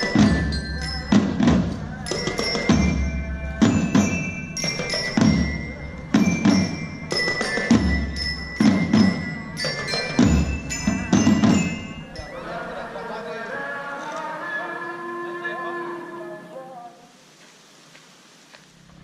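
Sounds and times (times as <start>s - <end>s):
deep drum beats: 0.0s - 12.2s
bell-like metal strikes: 0.0s - 12.5s.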